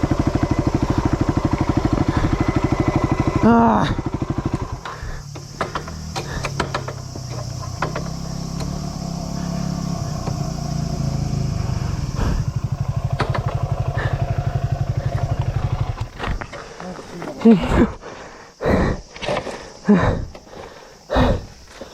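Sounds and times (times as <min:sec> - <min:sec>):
engine clatters and knocks: 0:00.0 - 0:16.7
motorcycle engine revving: 0:00.0 - 0:16.8.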